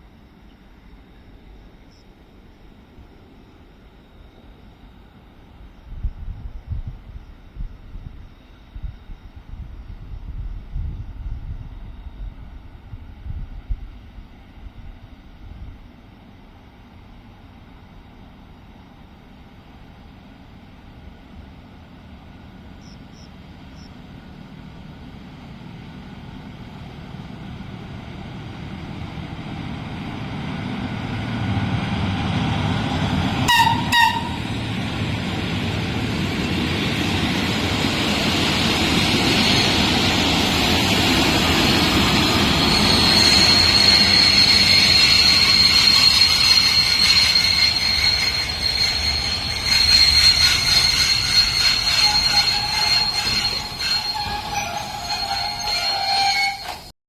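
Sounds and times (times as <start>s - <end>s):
train rolling noise: 0.0s - 57.0s
wheels and brakes squealing: 31.4s - 57.0s
train horn toots: 33.3s - 34.7s, 43.6s - 56.9s.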